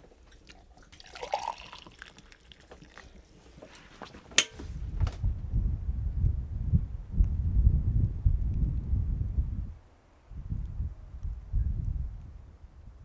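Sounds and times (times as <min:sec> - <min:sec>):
spoons and dishes clinking: 0:04.4 - 0:04.6.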